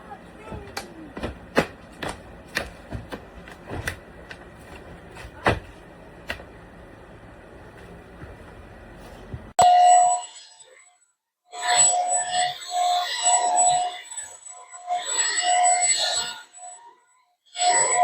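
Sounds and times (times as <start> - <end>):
stick vacuum running: 0.0 - 9.5
vacuum knocking on floor: 0.5 - 6.5.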